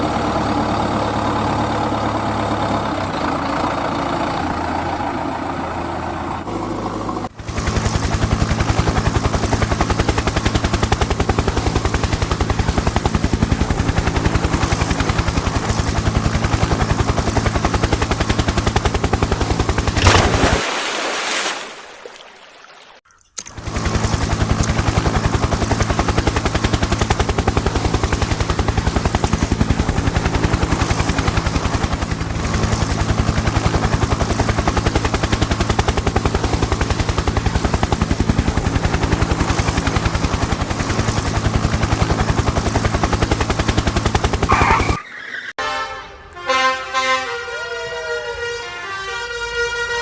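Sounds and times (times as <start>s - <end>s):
vehicle engine running: 0.0s - 20.6s, 23.4s - 45.0s
horn-like multi-tone sound: 45.6s - 50.0s.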